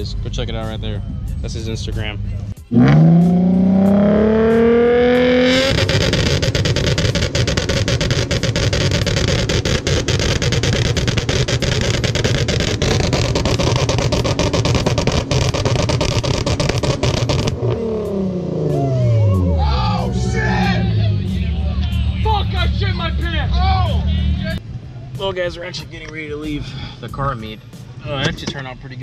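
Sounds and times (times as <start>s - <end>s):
car engine revving on limiter: 2.6s - 24.6s
exhaust crackling and popping: 2.7s - 18.6s, 27.4s - 29.0s.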